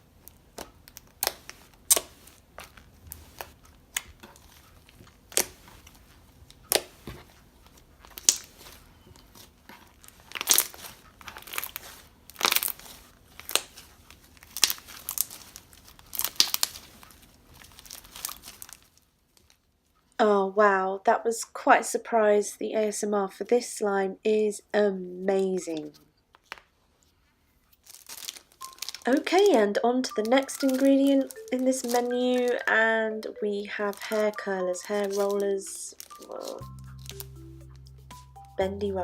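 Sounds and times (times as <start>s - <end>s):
hands squishing crunchy slime: 0.3s - 7.1s, 8.0s - 18.9s, 27.8s - 37.4s.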